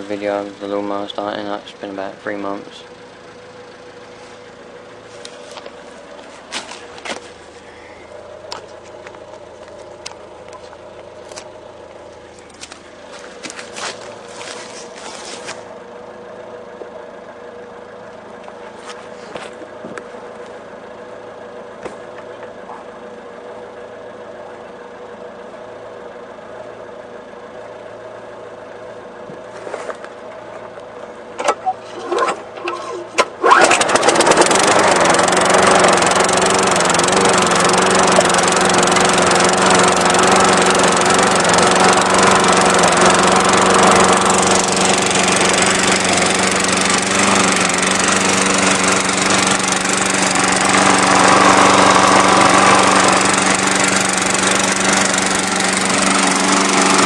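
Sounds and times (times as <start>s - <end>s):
lawn mower engine running: 0.0s - 57.0s
starter cord pulls: 31.4s - 35.3s.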